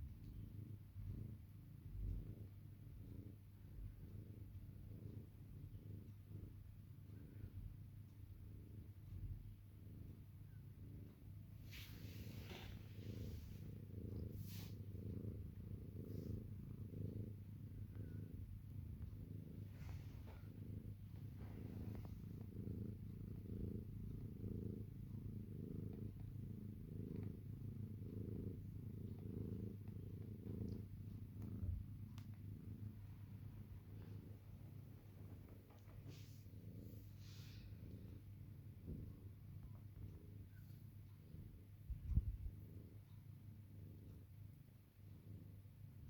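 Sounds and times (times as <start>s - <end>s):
cat purring: 0.0s - 46.0s
soft rustles: 11.4s - 42.6s.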